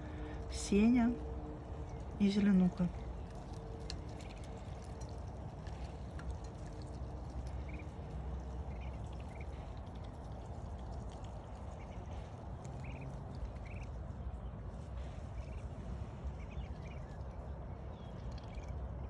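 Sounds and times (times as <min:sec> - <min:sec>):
ducklings peeping: 0:03.3 - 0:14.0, 0:14.6 - 0:19.0.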